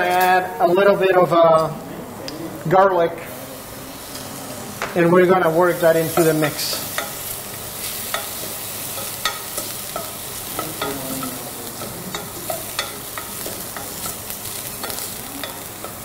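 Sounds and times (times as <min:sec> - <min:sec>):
onion and garlic sizzling in oil: 0:03.3 - 0:16.0.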